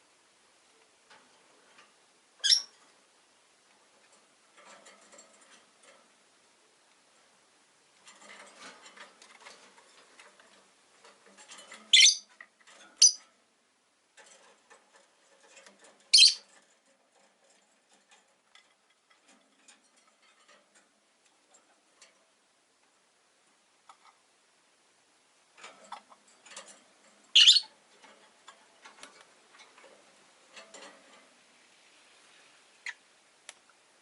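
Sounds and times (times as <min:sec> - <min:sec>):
clicking and rustling in cage: 0:00.6 - 0:24.3, 0:25.4 - 0:33.8
lovebirds shrill chirps: 0:02.4 - 0:02.7, 0:11.9 - 0:12.3, 0:13.0 - 0:13.2, 0:16.1 - 0:16.5, 0:27.3 - 0:27.7.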